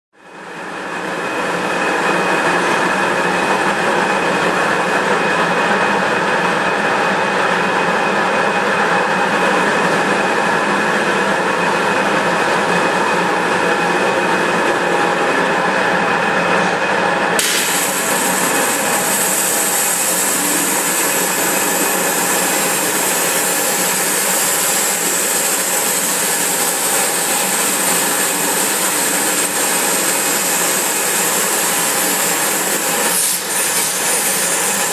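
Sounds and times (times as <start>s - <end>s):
waterjet cutting machine hissing: 17.4s - 34.9s.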